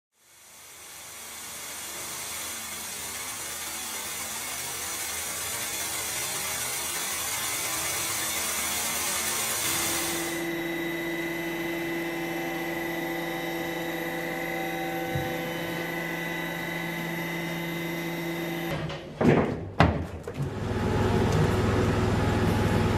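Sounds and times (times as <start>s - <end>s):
machine hum: 9.6s - 19.0s.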